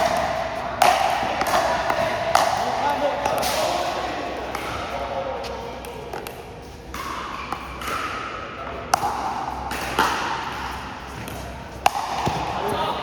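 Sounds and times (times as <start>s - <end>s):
paddles hitting plastic ball: 0.0s - 3.7s, 11.2s - 12.8s
steady background din: 0.0s - 13.0s.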